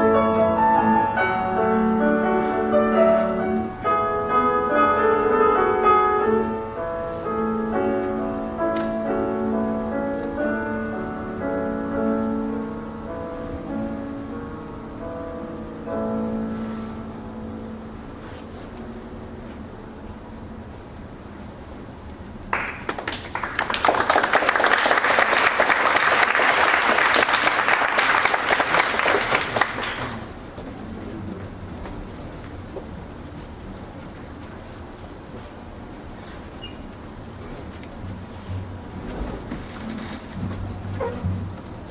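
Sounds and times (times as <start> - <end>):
audience applauding: 22.5 - 30.4.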